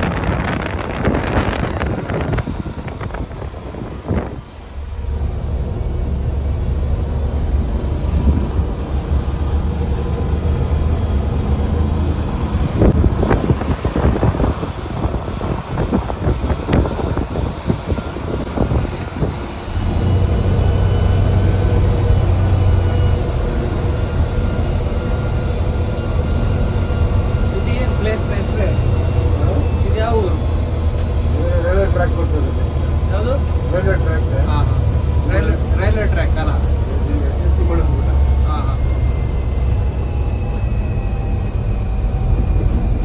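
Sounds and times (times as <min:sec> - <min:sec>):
bus diesel engine drone: 0:00.0 - 0:43.0.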